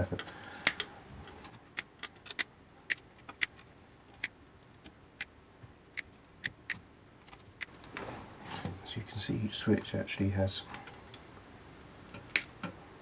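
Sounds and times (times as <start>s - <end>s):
side cutters snipping wires: 12.1s - 12.7s.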